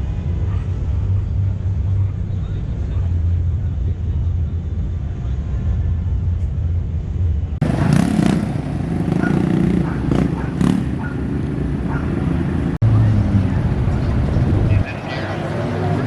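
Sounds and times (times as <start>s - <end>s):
car engine exhaust rumble: 0.0s - 15.6s
car engines revving in bursts: 7.6s - 13.6s.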